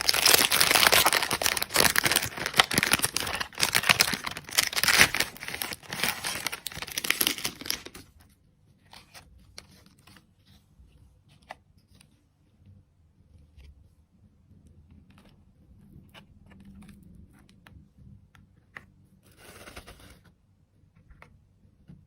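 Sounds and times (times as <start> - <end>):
candy wrapper crinkling and tearing: 0.0 - 8.1.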